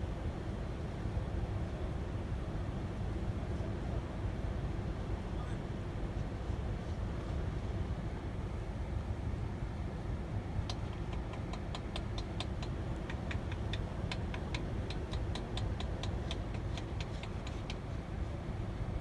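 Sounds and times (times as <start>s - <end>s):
steady low rumble: 0.0s - 19.0s
metallic tapping on engine: 10.6s - 18.0s.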